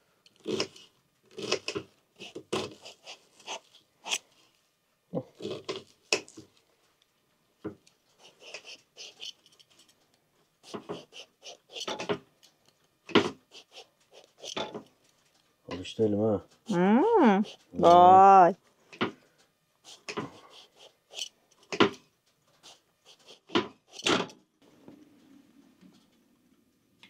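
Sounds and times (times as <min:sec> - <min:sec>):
scraping and cutting vegetable: 0:00.4 - 0:04.4, 0:05.3 - 0:06.6, 0:07.9 - 0:10.0, 0:10.6 - 0:12.2, 0:13.1 - 0:15.4, 0:17.4 - 0:17.8, 0:19.8 - 0:21.9, 0:22.5 - 0:24.3.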